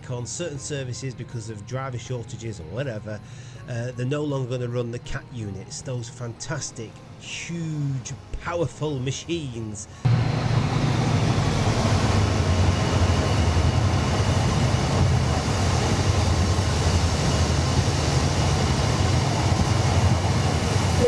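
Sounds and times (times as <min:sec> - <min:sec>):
train low rumble: 0:09.9 - 0:21.0.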